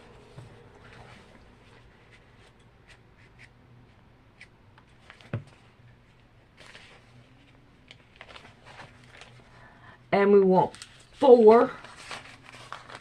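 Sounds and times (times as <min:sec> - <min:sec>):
low steady hum: 0:00.0 - 0:13.0
thin paper pages rustling: 0:06.6 - 0:09.6, 0:10.6 - 0:13.0.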